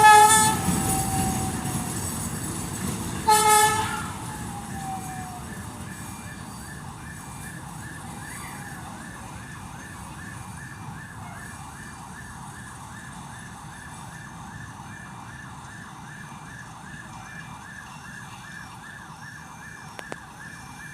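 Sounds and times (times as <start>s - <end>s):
diesel locomotive rumble: 0.0s - 20.9s
electronic siren chirping: 4.1s - 12.3s.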